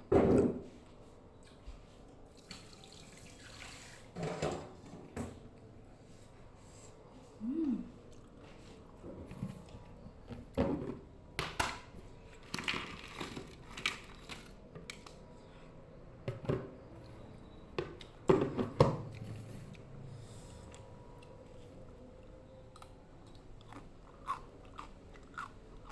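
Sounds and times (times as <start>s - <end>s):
crunching and chewing vegetables: 8.0s - 10.6s, 19.0s - 25.9s.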